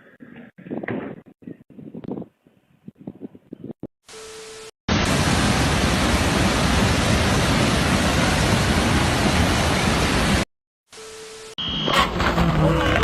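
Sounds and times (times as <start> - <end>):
loud static hiss: 4.2 - 11.9.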